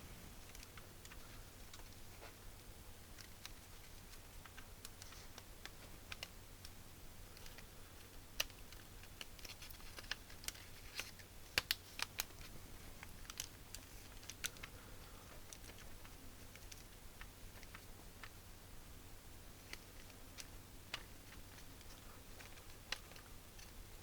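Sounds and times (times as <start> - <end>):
plastic keyboard parts clicking: 0.4 - 2.0, 8.4 - 12.4.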